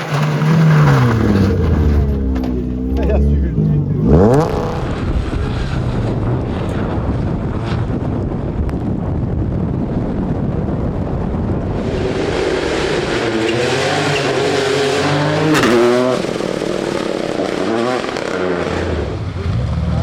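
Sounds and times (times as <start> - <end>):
rally car passing at full throttle: 0.0 - 20.0
wind rumbling on microphone: 3.0 - 15.2.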